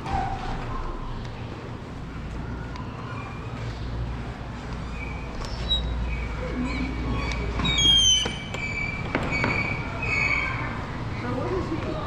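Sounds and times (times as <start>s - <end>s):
birds chirping: 2.4s - 12.0s.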